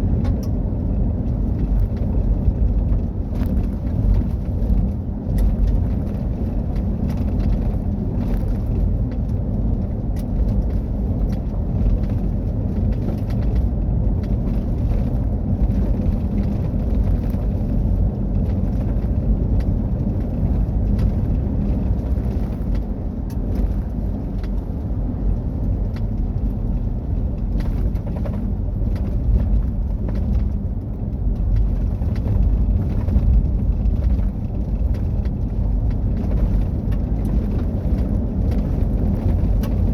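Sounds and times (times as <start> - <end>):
engine and tyres over rough ground: 0.0 - 39.9
small ticks and clicks: 1.2 - 39.9.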